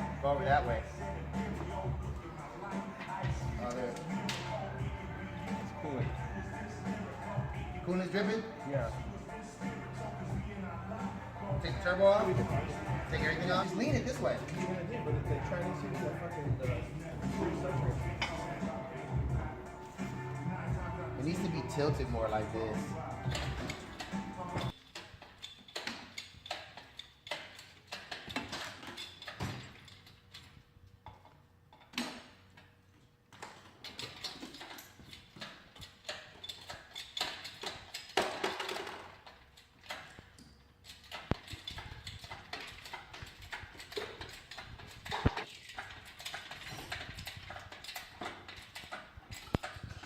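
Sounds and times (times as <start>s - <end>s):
tools knocking on metal parts: 33.4s - 50.0s.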